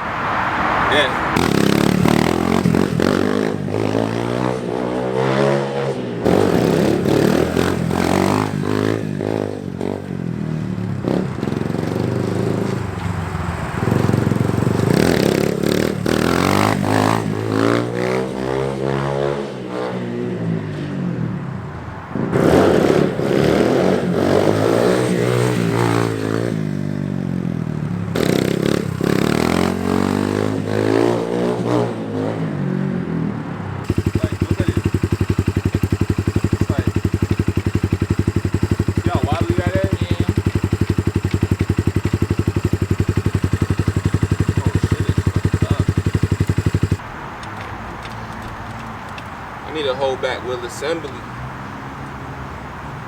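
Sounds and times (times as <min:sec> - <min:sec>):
dirt bike engine revving: 0:00.0 - 0:20.8, 0:22.2 - 0:32.7, 0:33.8 - 0:47.1
rattle and scrape: 0:33.9 - 0:49.4.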